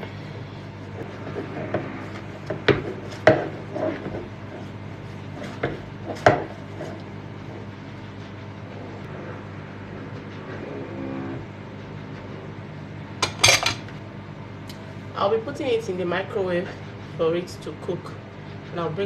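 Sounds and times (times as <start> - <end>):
steady hum: 0.0 - 19.0
kitchen utensils and dishes clattering: 13.2 - 13.9.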